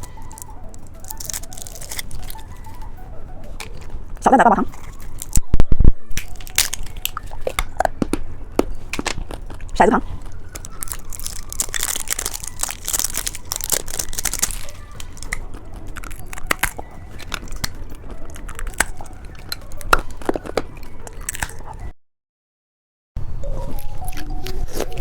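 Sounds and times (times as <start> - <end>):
candy crunching and chewing: 0.0 - 21.9, 23.5 - 25.0.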